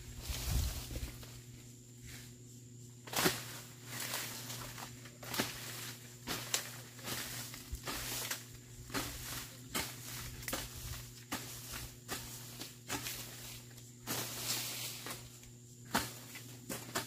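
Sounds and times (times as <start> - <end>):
hoe chopping into soil: 3.1 - 3.6, 5.2 - 17.0.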